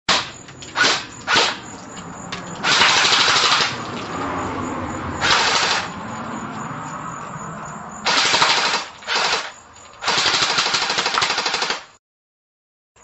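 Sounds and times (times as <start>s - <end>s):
automatic gunfire bursts: 2.6s - 3.8s, 5.2s - 5.9s, 8.1s - 11.9s.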